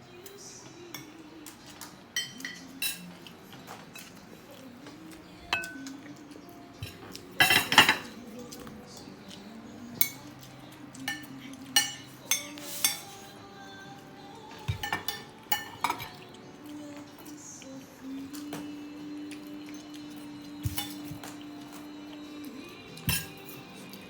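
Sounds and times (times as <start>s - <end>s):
cutlery clinking on a plate: 0.9s - 4.2s, 5.5s - 6.0s, 6.8s - 8.7s, 10.0s - 13.2s, 14.6s - 16.4s, 19.6s - 24.0s.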